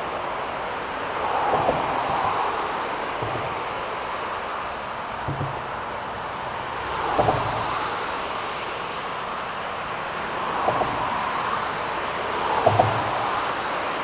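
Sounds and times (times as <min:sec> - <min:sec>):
wind: 0:00.0 - 0:14.0
double knock and low thump: 0:03.2 - 0:03.8, 0:05.2 - 0:06.0, 0:07.1 - 0:07.9, 0:12.6 - 0:13.2.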